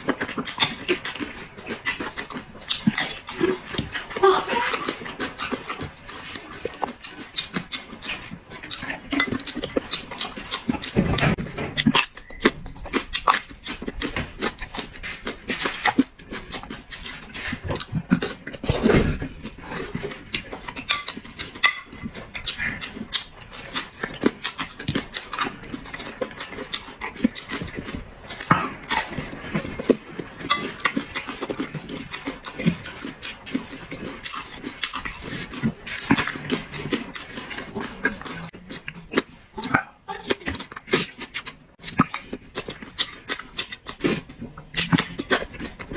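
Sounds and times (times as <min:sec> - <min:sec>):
wet chewing and slurping: 0:00.0 - 0:45.9.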